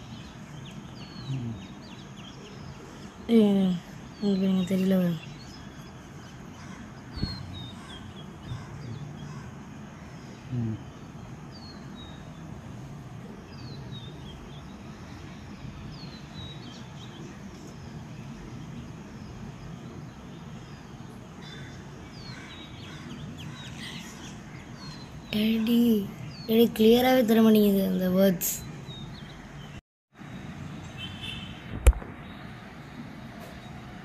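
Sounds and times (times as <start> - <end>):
birds chirping: 0.0 - 34.0
outdoor background noise: 0.0 - 34.0
sharp knock: 7.2 - 7.4, 31.7 - 32.1.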